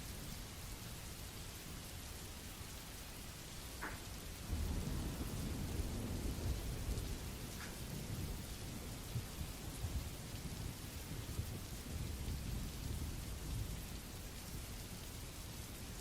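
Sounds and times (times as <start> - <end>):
rain hissing: 0.0 - 16.0
thunder rumbling: 4.4 - 14.1.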